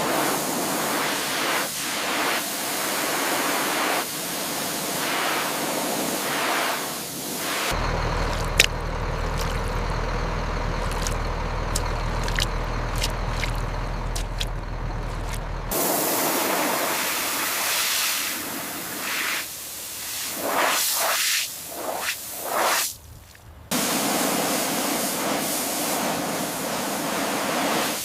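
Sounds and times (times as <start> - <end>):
water spraying hiss: 0.0 - 9.7, 15.7 - 23.0, 23.7 - 28.0
motor humming: 7.7 - 15.8.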